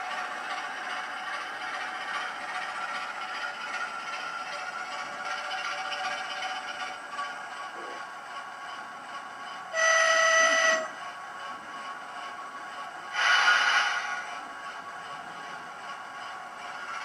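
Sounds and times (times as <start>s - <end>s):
diesel engine sound from speaker: 7.7s - 8.1s
loud train horn: 9.7s - 10.9s.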